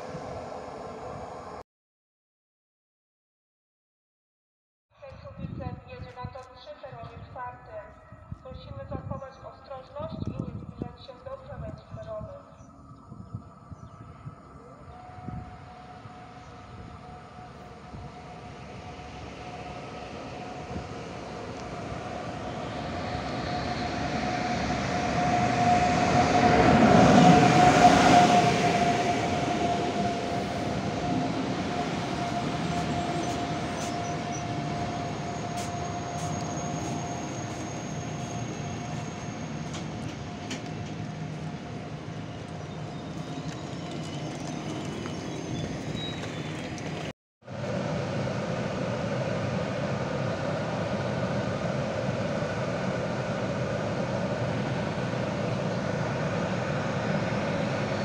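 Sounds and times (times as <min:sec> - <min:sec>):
train rumbling into platform: 0:00.0 - 0:01.6, 0:05.0 - 0:58.0
high squeal: 0:12.6 - 0:41.3, 0:42.2 - 0:47.1.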